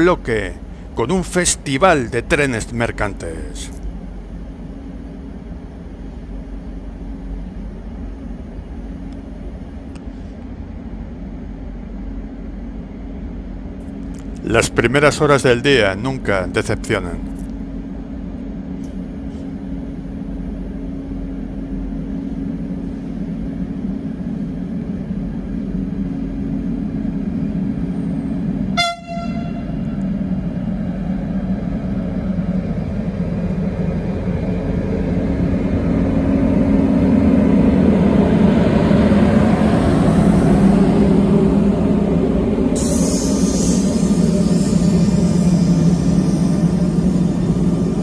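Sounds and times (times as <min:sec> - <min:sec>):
freight train rumbling past: 0:00.0 - 0:48.0
steady low hum: 0:00.0 - 0:48.0
train horn toot: 0:28.7 - 0:30.0.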